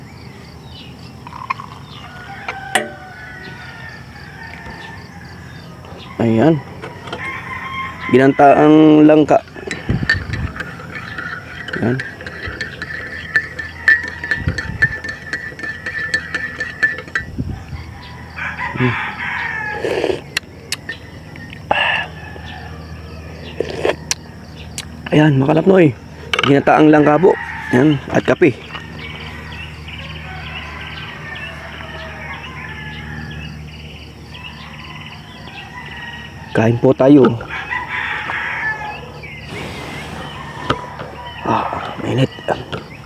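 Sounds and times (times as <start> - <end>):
insects trilling: 0.0 - 43.0
small birds chirping: 0.0 - 43.0
rooster crowing: 1.7 - 20.2, 21.8 - 24.6, 26.8 - 33.6, 34.3 - 43.0
steady low hum: 39.2 - 43.0.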